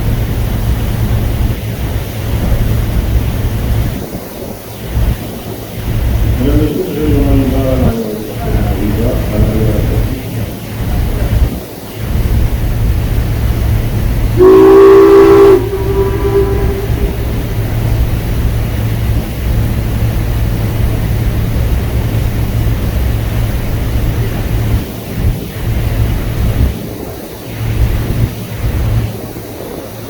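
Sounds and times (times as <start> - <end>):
low rumble: 4.8 - 26.8
boat horn blast: 14.3 - 19.3.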